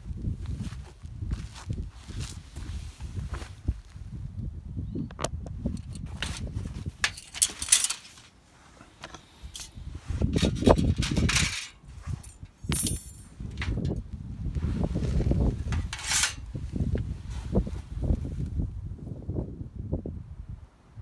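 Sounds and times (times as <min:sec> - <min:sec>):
gear rustling and clinking: 0:05.7 - 0:14.0, 0:14.7 - 0:17.0
scrape or jingle: 0:07.0 - 0:09.8, 0:10.4 - 0:14.0, 0:15.6 - 0:16.5.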